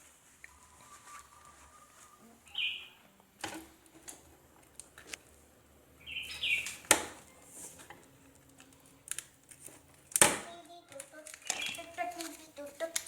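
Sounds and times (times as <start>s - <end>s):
bird chirping: 0.5s - 3.1s, 6.0s - 7.4s, 11.4s - 11.9s.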